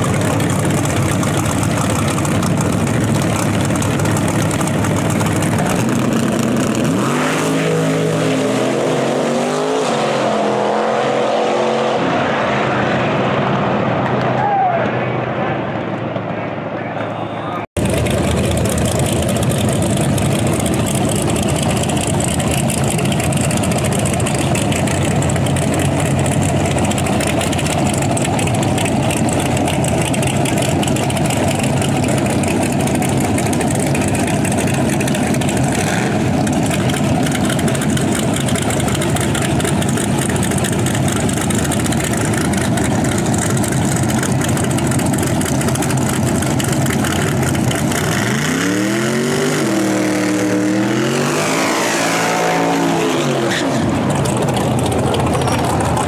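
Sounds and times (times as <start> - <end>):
truck engine idling loudly: 0.0 - 7.0, 17.6 - 51.7, 52.5 - 56.0.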